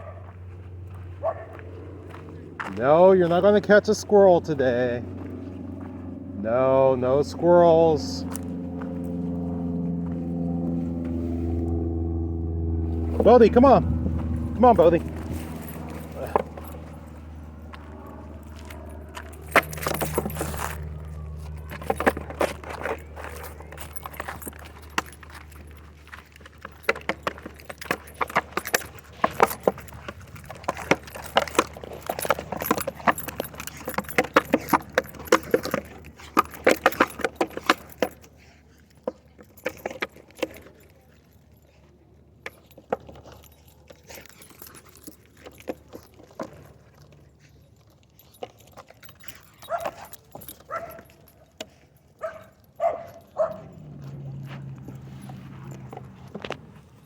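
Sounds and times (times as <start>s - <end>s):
dog barking: 0.0s - 0.4s, 1.2s - 1.6s, 49.6s - 50.1s, 50.7s - 51.1s, 52.2s - 53.8s
metallic jingling and rattling: 0.0s - 12.2s, 13.0s - 57.0s.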